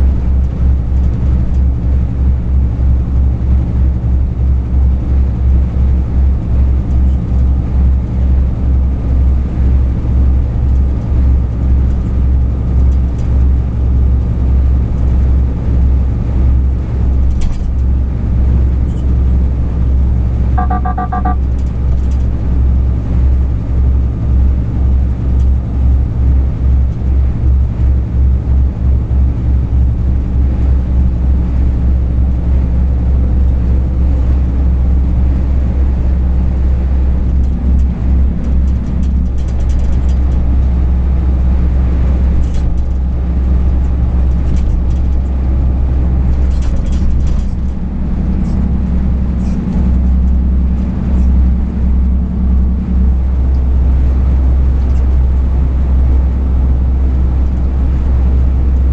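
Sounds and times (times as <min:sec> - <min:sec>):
truck engine and road rumble: 0:00.0 - 0:58.9
electronic beeps: 0:20.6 - 0:21.4.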